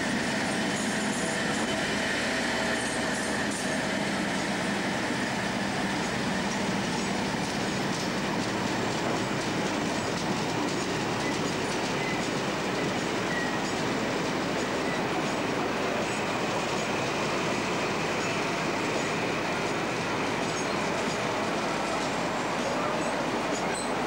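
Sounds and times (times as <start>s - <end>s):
train wheels rumbling: 0.0s - 24.0s
faint wheel squeals: 13.1s - 13.8s, 22.6s - 24.0s.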